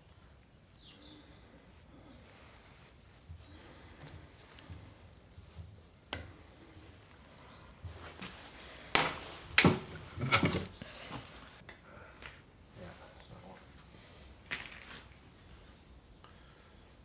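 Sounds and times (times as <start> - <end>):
sharp click: 6.1 - 6.4.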